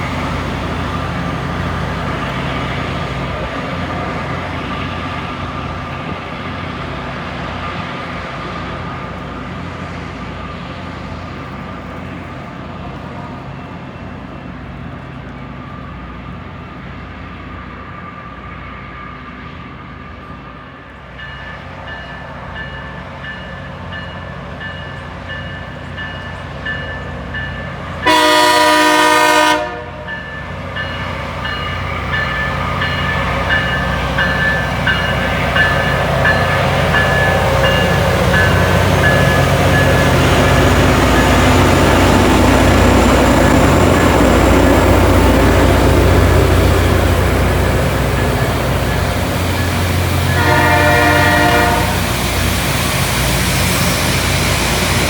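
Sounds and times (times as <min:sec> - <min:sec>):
rail grinder rumble and hiss: 0:25.8 - 0:55.0
horn blast: 0:28.0 - 0:30.1, 0:50.2 - 0:52.2.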